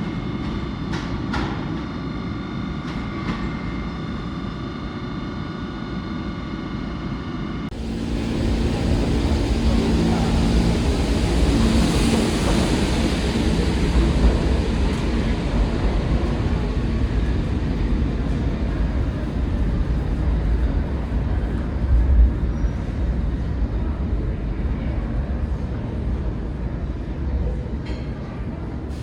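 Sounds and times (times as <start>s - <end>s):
train rumbling past: 7.7s - 29.0s.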